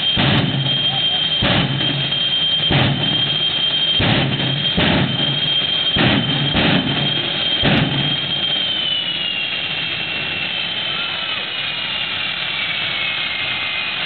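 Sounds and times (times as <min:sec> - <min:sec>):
jet engine whine: 0:00.0 - 0:14.0
loud jet engine bursts: 0:00.0 - 0:14.0.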